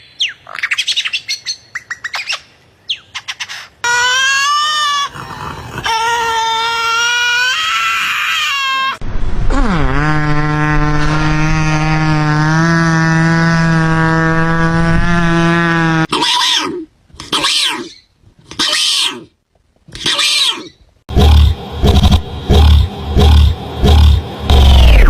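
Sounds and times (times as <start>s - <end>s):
animal crying: 3.2s - 9.0s, 16.1s - 19.3s, 19.9s - 20.8s.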